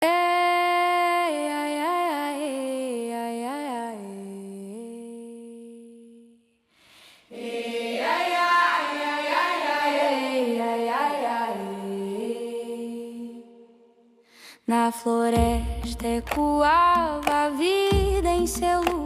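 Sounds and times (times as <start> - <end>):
wordless singing: 7.2 - 19.0.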